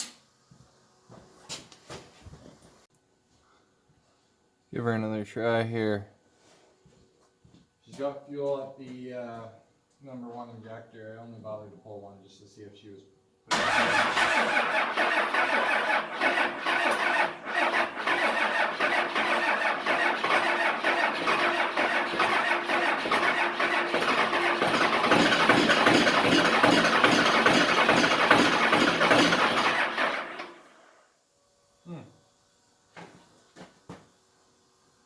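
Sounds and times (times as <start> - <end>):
starter cranking diesel engine: 13.5 - 30.8.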